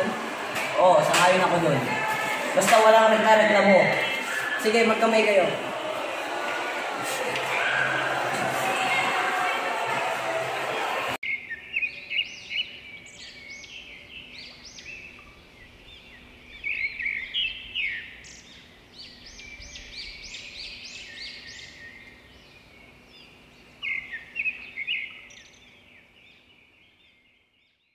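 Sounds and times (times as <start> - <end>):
small birds chirping and twittering: 11.2 - 27.9.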